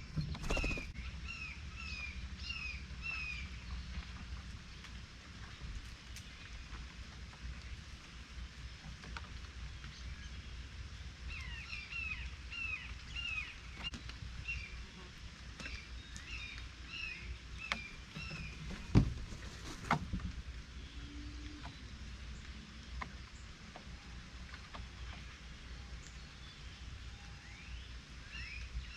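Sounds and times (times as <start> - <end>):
bird chirping: 0.0 - 3.9, 11.3 - 19.0
low outdoor rumble: 0.0 - 28.9.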